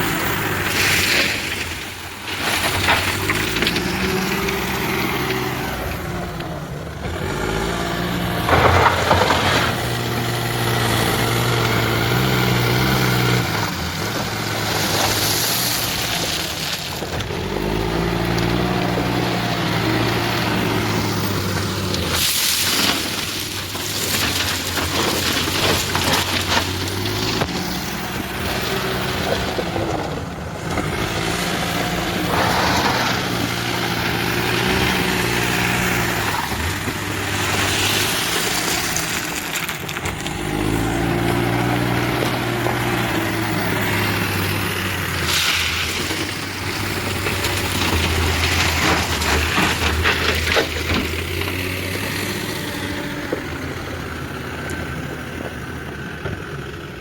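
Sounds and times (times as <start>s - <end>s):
diesel engine running under load: 0.0s - 57.0s
scraping and crashing from loading: 0.3s - 6.2s, 7.9s - 11.1s, 14.6s - 43.2s.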